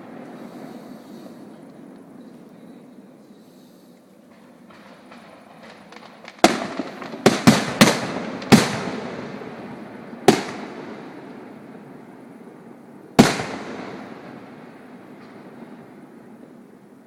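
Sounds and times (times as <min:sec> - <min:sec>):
firework crackling: 0:00.0 - 0:17.0
firework bangs with echo: 0:04.4 - 0:11.6, 0:13.2 - 0:16.0.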